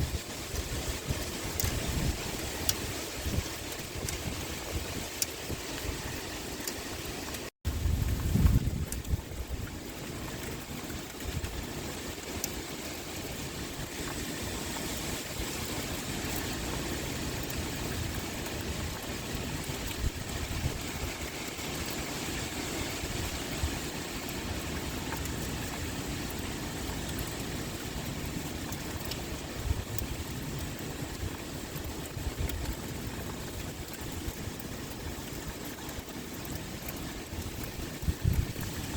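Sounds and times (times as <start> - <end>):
heavy rain pouring: 0.0 - 38.9
wind blowing: 0.0 - 38.9.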